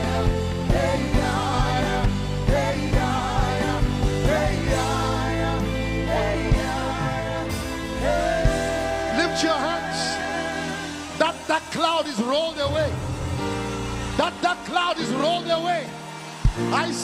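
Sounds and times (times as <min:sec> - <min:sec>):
steady drum beat: 0:00.0 - 0:09.9
person singing with vibrato: 0:00.0 - 0:11.2
keyboard chords: 0:00.0 - 0:17.0.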